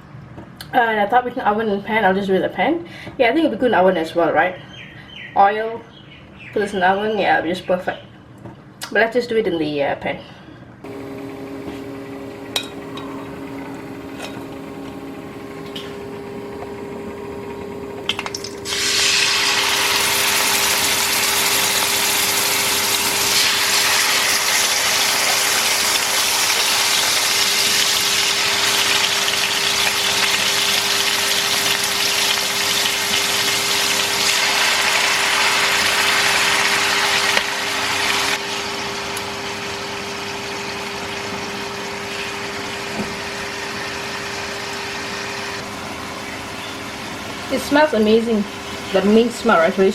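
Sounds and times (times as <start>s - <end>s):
steady hum: 10.4s - 49.9s
chicken sizzling in a pan: 18.6s - 38.9s.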